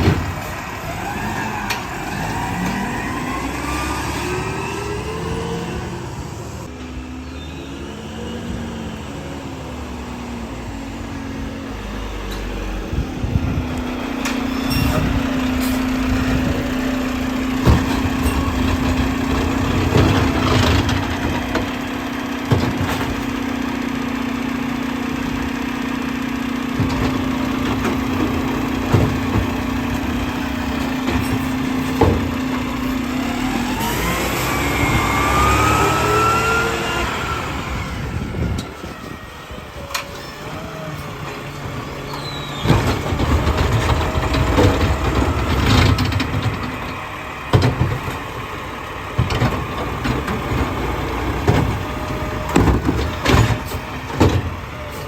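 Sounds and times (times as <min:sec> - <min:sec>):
clunks and knocks from trash: 0:00.0 - 0:00.5, 0:14.2 - 0:21.8, 0:22.4 - 0:23.5, 0:26.7 - 0:33.0, 0:42.6 - 0:48.4, 0:49.1 - 0:54.6
garbage truck engine: 0:00.0 - 0:55.0
hydraulics compacting: 0:00.0 - 0:55.0.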